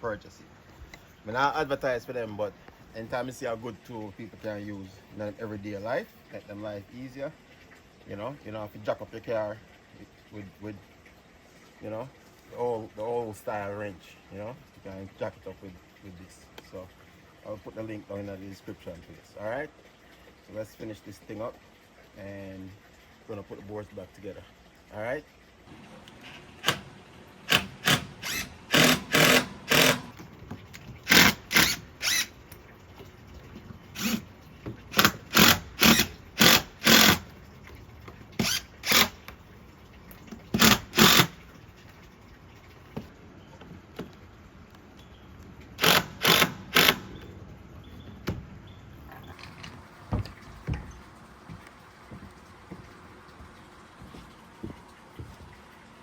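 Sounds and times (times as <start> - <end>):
power drill driving screws: 26.0 - 30.2, 31.0 - 32.4, 34.0 - 34.2, 34.9 - 37.2, 38.4 - 39.2, 40.6 - 41.3, 45.8 - 47.2.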